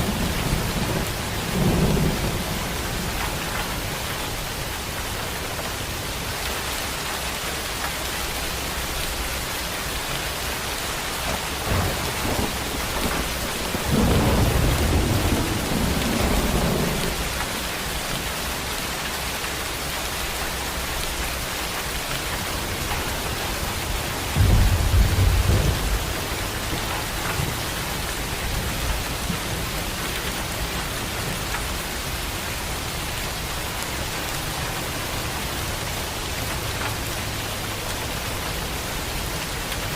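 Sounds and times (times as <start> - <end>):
rolling thunder: 0.0 - 4.1, 11.2 - 17.4, 23.0 - 30.0
heavy rain falling: 0.0 - 39.9
thunder crack: 11.6 - 17.2, 24.2 - 27.6.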